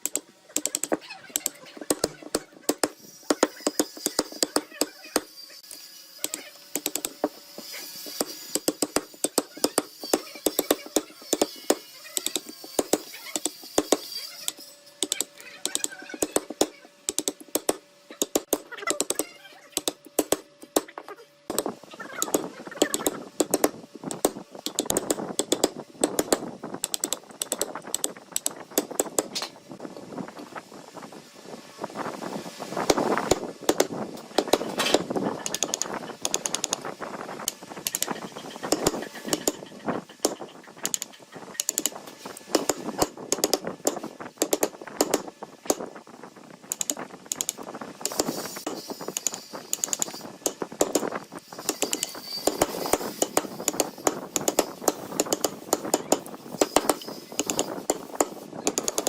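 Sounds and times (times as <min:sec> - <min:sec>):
sharp taps and knocks on wood: 0:15.0 - 0:29.4, 0:40.2 - 0:45.9, 0:46.7 - 0:59.0.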